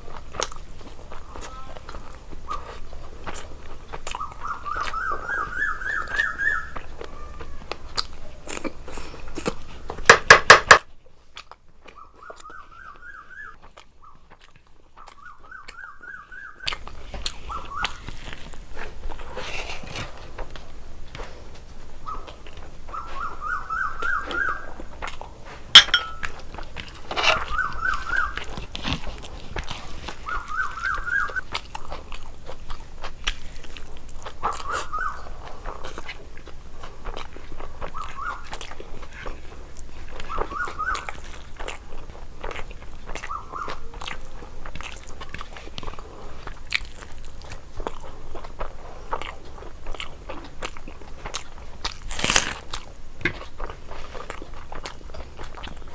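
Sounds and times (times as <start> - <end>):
person chewing food: 0.1 - 10.1, 10.7 - 16.0, 16.7 - 23.4, 24.0 - 55.9
high-pitched squeaks: 27.1 - 28.1.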